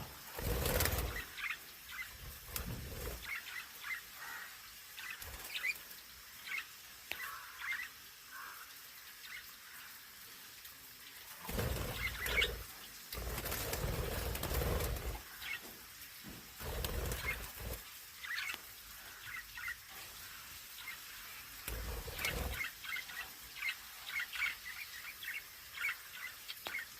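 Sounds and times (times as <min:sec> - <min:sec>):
budgies chirping: 0:11.5 - 0:12.7, 0:21.7 - 0:26.8.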